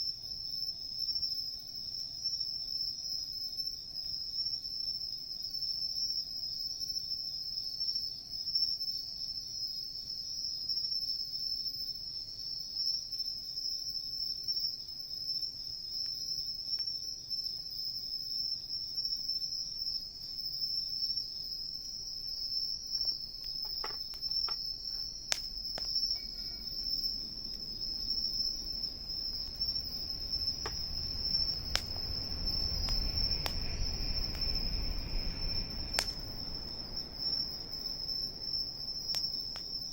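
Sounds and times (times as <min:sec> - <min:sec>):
insects trilling: 0:00.0 - 0:39.9
wood fire crackling: 0:21.4 - 0:39.9
low rumble: 0:23.6 - 0:39.9.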